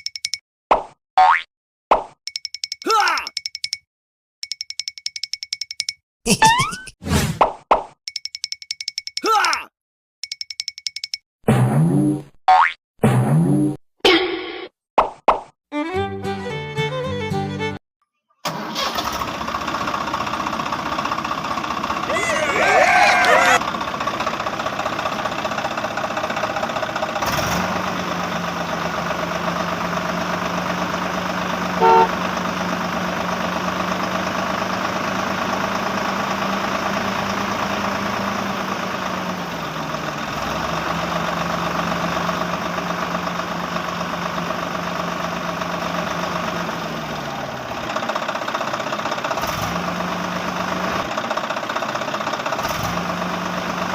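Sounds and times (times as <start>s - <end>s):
short horn beep: 31.8s - 32.2s.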